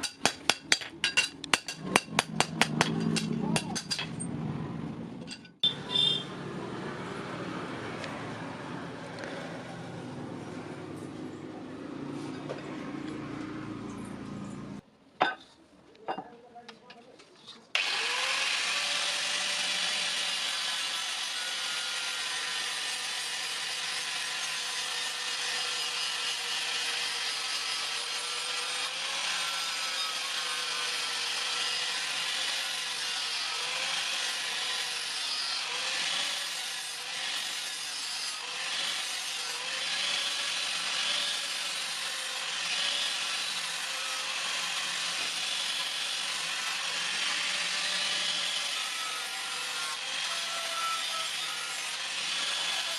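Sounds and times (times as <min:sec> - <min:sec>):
power tool grinding metal: 0:17.8 - 0:52.9.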